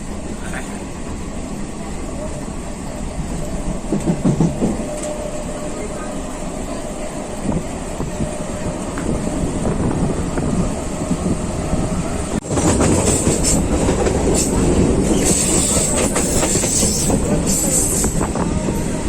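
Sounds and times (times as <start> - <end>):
train rumble inside coach: 0.0 - 19.0
wheels clacking over rail joints: 12.4 - 18.2.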